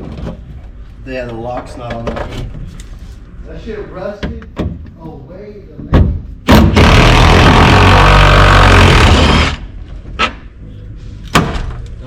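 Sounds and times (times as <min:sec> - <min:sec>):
power tool running: 0:06.7 - 0:09.7.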